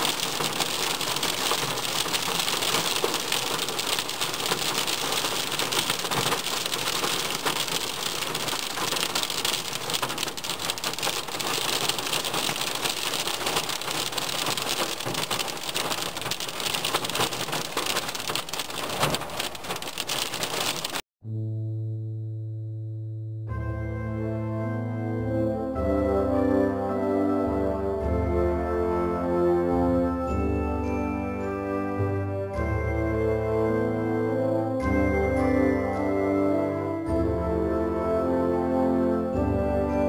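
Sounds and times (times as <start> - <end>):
heavy rain falling: 0.0 - 21.0
organ music: 23.2 - 40.0.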